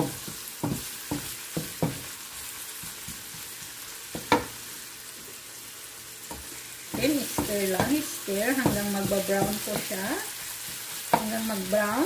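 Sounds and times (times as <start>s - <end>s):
wooden spoon knocking a pan: 0.0s - 2.1s, 2.7s - 4.6s, 6.3s - 11.8s
garlic sizzling in hot oil: 0.0s - 12.0s.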